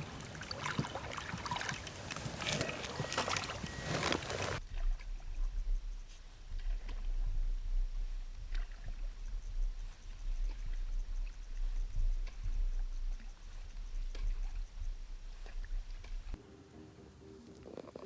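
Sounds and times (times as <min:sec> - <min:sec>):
paddle splashing water: 0:00.0 - 0:05.0
low steady rumble: 0:04.6 - 0:16.4.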